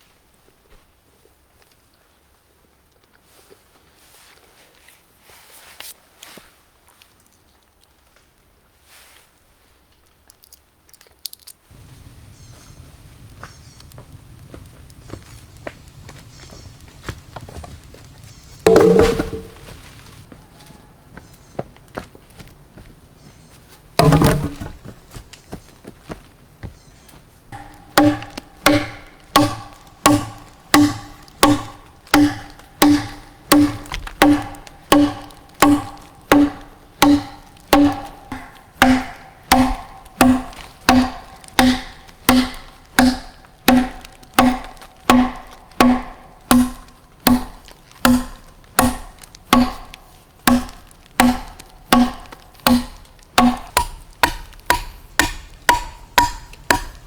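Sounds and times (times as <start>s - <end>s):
rhythmic ringing strikes: 27.6s - 49.9s.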